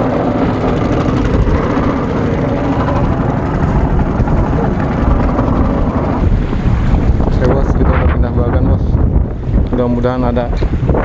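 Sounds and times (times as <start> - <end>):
small boat engine running: 0.0 - 8.4.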